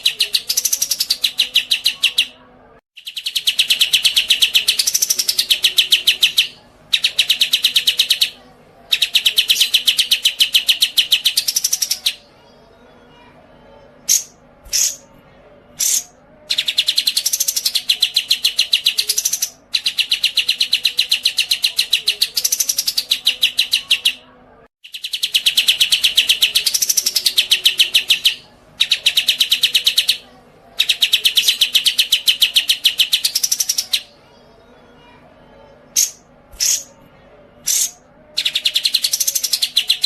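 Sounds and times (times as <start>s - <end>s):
bird chirps: 0.0s - 2.4s, 3.0s - 12.2s, 14.1s - 15.1s, 15.8s - 30.2s, 36.0s - 36.9s, 37.7s - 40.0s
songbird rapid chattering trills: 3.0s - 12.2s, 14.1s - 15.0s, 15.8s - 24.2s, 36.0s - 36.9s, 37.7s - 40.0s.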